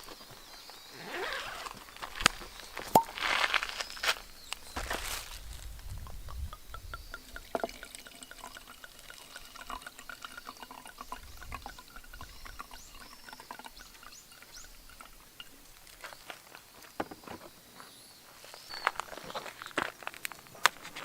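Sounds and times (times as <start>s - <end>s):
water pouring and dripping: 1.7s - 17.0s.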